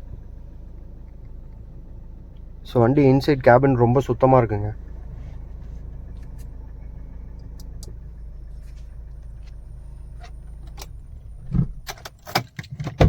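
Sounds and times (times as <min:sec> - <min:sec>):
diesel engine idling: 0:00.0 - 0:12.3
sharp clicks and knocks: 0:10.2 - 0:13.0
heavy thump: 0:11.4 - 0:11.9.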